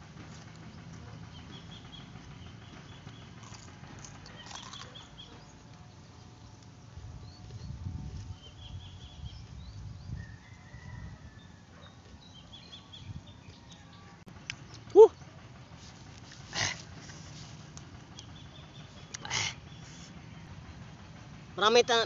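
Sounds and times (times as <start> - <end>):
crunchy bite and chewing: 3.4 - 5.5.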